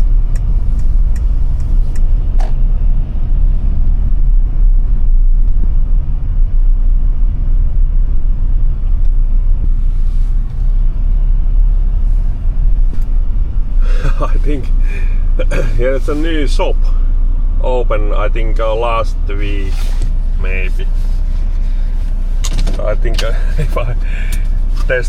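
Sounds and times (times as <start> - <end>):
light ticks: 0.0 - 2.6
truck engine and tyres rumbling: 0.0 - 25.0.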